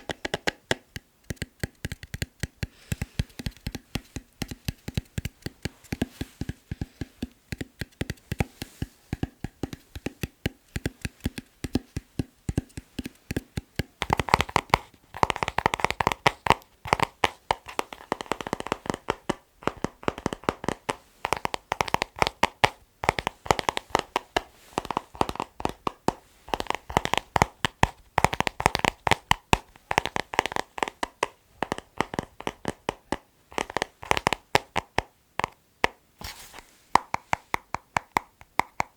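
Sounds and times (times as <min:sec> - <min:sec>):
fingertip tapping on objects: 0:00.0 - 0:38.9.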